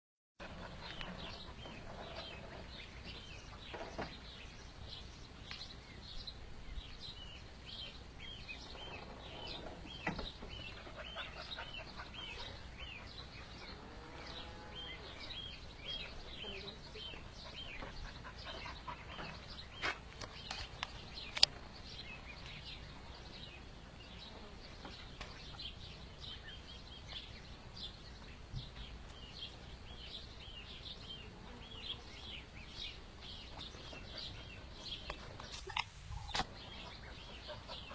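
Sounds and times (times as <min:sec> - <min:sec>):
duckling peeping: 0:33.4 - 0:37.9.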